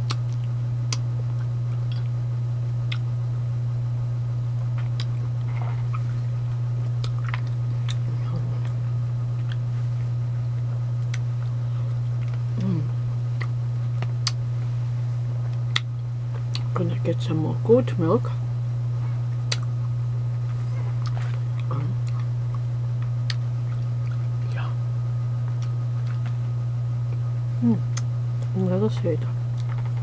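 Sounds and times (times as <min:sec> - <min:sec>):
steady low hum: 0:00.0 - 0:30.0
close-up chewing: 0:04.6 - 0:12.7, 0:19.3 - 0:24.6, 0:25.4 - 0:26.5
wet mouth clicks and smacks: 0:19.4 - 0:19.7.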